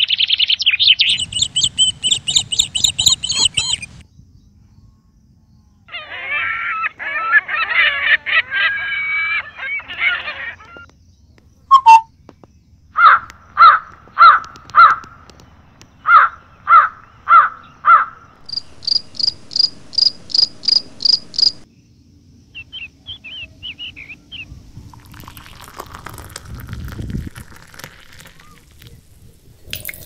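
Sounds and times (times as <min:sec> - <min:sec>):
loud bird calls: 0:00.0 - 0:04.0, 0:05.9 - 0:10.9, 0:12.9 - 0:21.7, 0:22.5 - 0:24.5
soft chirps: 0:00.1 - 0:04.0, 0:11.7 - 0:12.2, 0:18.4 - 0:21.7
quick high-pitched bird notes: 0:11.7 - 0:12.1.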